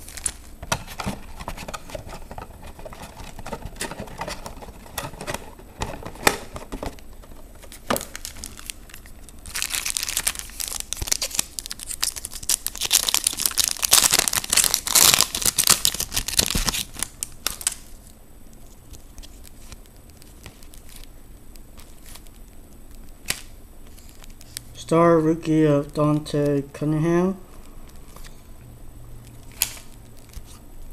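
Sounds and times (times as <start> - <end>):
foil wrapper crinkling and tearing: 0.0 - 5.6, 7.6 - 18.0, 18.9 - 24.6.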